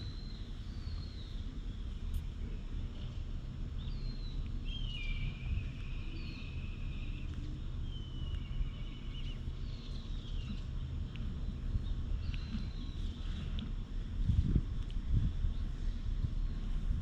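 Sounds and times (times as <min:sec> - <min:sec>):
birds whistling calls: 0:00.0 - 0:02.0, 0:03.8 - 0:13.6
low rumble: 0:00.0 - 0:17.0.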